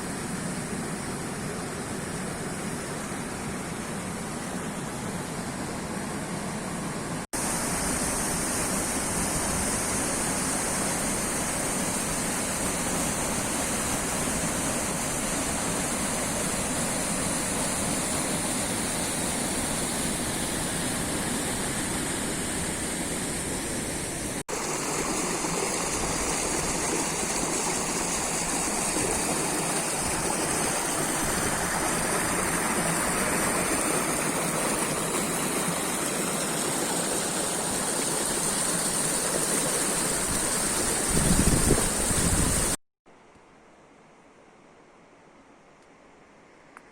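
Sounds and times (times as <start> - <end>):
waterfall rushing: 7.4 - 41.2.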